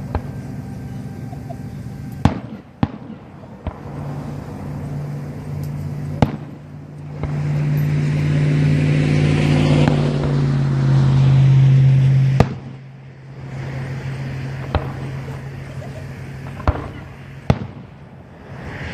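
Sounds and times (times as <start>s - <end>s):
firework bangs: 0.0s - 10.7s, 12.2s - 18.9s
steady low hum: 0.0s - 18.9s
firework cracks: 2.2s - 7.6s, 12.3s - 18.9s.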